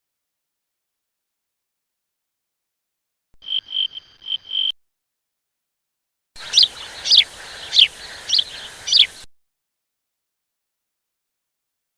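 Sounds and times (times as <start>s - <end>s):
high pulsing animal call: 6.4s - 9.2s
faint hiss: 6.4s - 9.3s.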